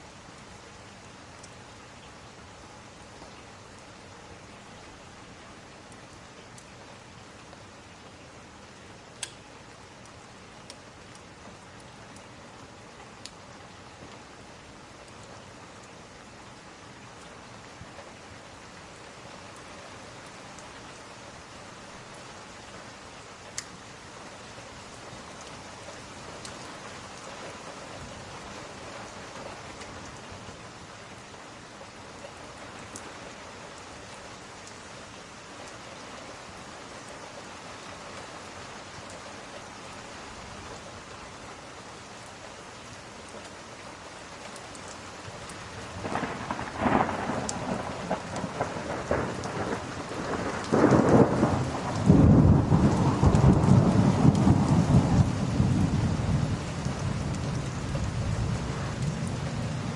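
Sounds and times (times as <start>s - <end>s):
steady rain hiss: 0.0s - 59.9s
thunder rolling and rumbling: 46.0s - 59.9s.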